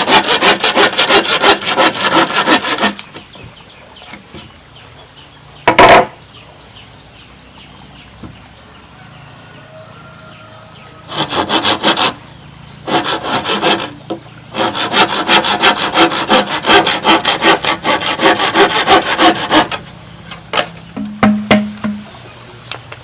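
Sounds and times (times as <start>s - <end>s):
hand saw cutting: 0.0s - 3.2s, 11.1s - 12.2s, 12.8s - 19.9s.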